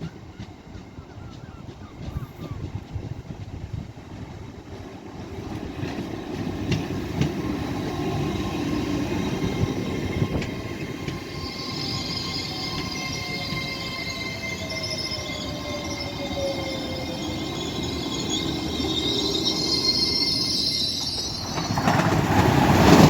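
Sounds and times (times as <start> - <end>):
wheels clicking over rail joints: 0.0 - 13.6, 21.2 - 23.0
train rumble: 0.0 - 23.0.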